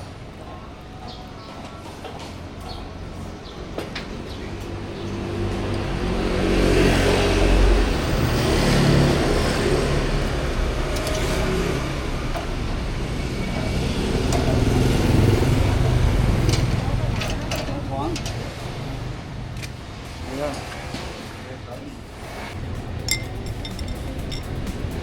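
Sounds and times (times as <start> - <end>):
motor vehicle engines running: 0.0 - 25.0.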